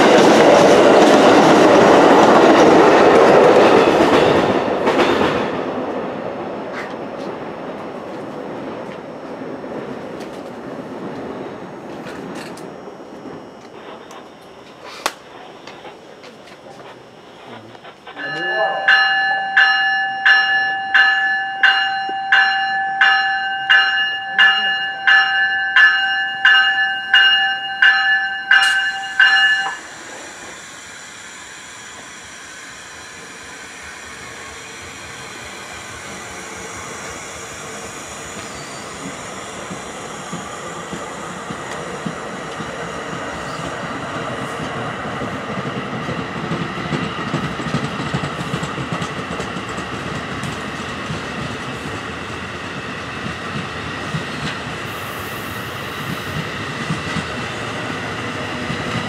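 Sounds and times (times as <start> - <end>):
train wheels on rails: 0.0 - 59.0
train bell ringing: 18.1 - 30.5.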